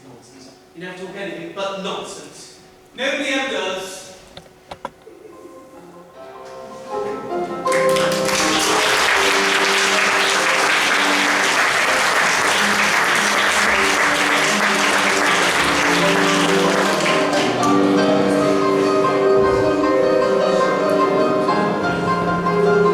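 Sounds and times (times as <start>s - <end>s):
music: 0.0s - 22.9s
audience applause: 7.7s - 17.9s.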